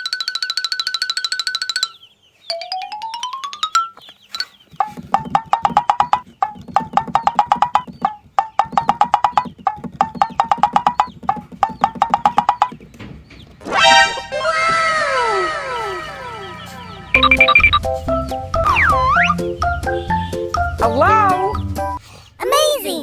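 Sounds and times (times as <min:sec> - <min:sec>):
wood block ticking: 0:00.0 - 0:13.1, 0:17.1 - 0:20.8
cartoon rising glide: 0:13.6 - 0:17.8, 0:18.6 - 0:19.4.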